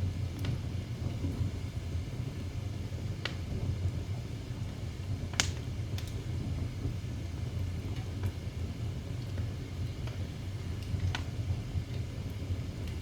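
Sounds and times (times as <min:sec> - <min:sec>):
fire low rumble: 0:00.0 - 0:13.0
fire crackling pops: 0:05.2 - 0:08.4, 0:09.3 - 0:13.0.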